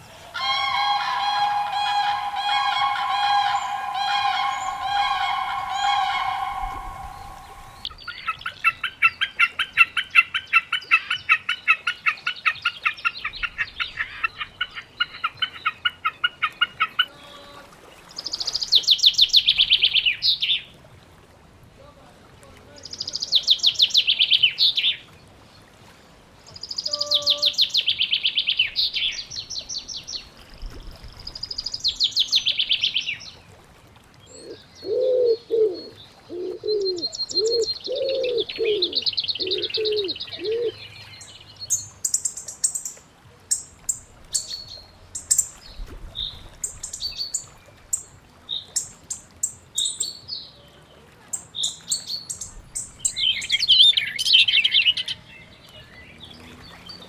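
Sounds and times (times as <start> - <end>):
low cooing: 0.0 - 7.9, 34.4 - 40.8
thin high bird song: 0.0 - 8.6, 34.2 - 57.0
trilled bird song: 0.4 - 8.3.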